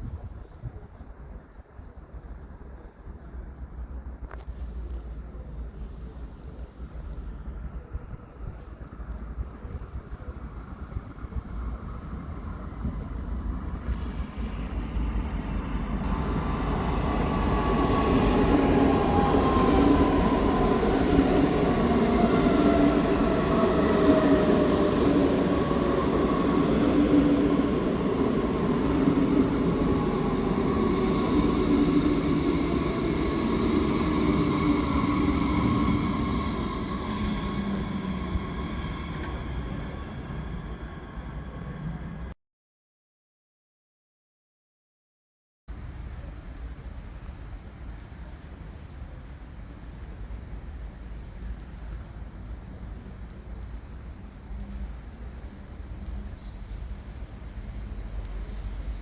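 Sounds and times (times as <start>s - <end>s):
train wheels rumbling: 2.0s - 42.3s
train motor whine: 13.9s - 42.3s.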